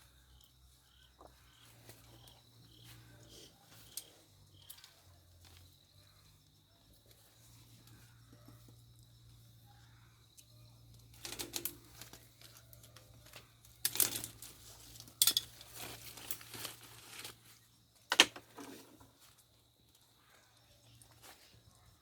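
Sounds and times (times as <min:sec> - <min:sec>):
rustling and crinkling: 0:00.0 - 0:09.6, 0:10.8 - 0:22.0
faint low hum: 0:00.0 - 0:15.0.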